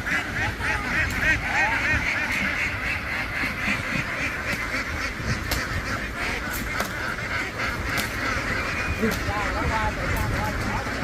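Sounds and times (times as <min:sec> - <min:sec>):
flock of ducks quacking: 0:00.0 - 0:11.0.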